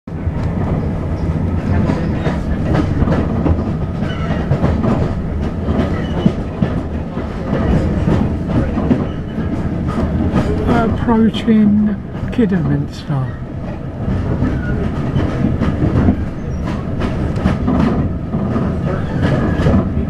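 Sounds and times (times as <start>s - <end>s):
train rumble: 0.1s - 20.0s.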